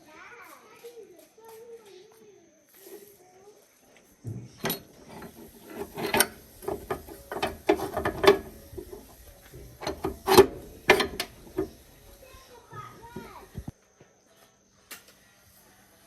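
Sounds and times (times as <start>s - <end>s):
sharp clicks and knocks: 4.6s - 12.3s, 13.0s - 13.7s
hand tools scraping metal: 4.6s - 13.7s.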